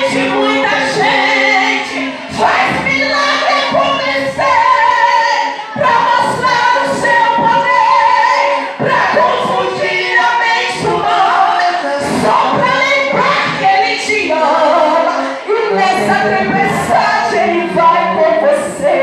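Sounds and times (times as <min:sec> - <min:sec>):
choir singing a cappella: 0:00.0 - 0:19.0.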